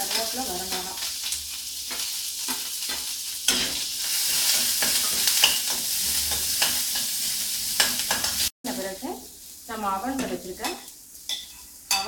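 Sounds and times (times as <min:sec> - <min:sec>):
food sizzling in hot oil: 0:00.0 - 0:12.0
stirring clicks and scrapes in pan: 0:00.1 - 0:07.2.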